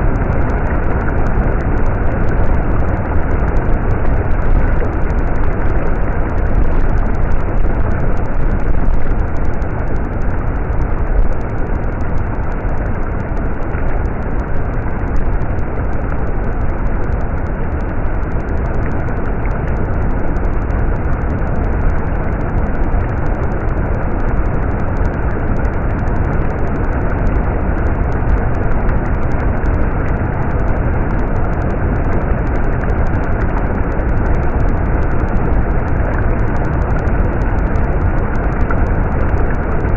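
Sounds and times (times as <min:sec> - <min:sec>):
stream water flowing: 0:00.0 - 0:19.8.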